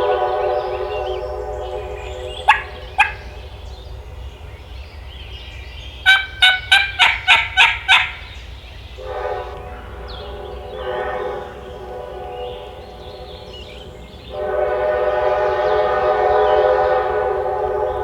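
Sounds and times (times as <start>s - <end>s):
train horn: 0.0s - 3.8s, 9.0s - 18.0s
turkey yelps: 2.3s - 3.4s, 6.0s - 8.4s.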